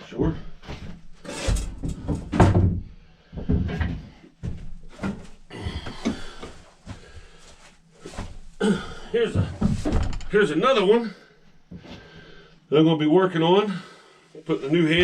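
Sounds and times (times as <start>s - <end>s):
hard objects knocking and clunking: 0.6s - 7.0s, 9.3s - 10.4s.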